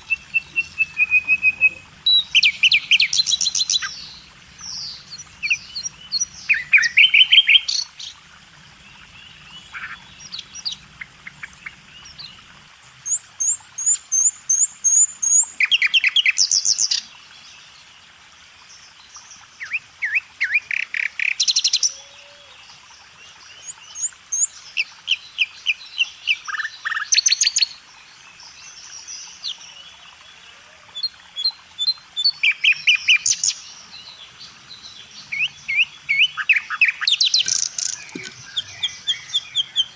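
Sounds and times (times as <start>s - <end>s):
small birds chirping: 0.0s - 5.8s, 34.7s - 39.9s.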